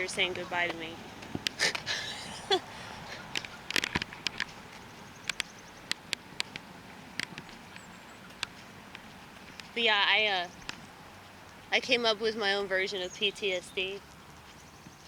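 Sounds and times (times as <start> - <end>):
low outdoor background noise: 0.0 - 15.0
sharp irregular clicks and taps: 3.3 - 9.0.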